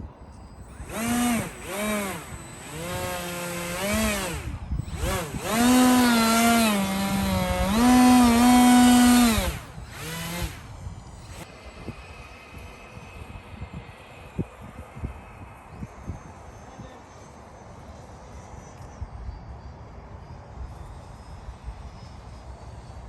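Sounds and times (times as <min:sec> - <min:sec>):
small electric motor revving: 0:00.6 - 0:14.8.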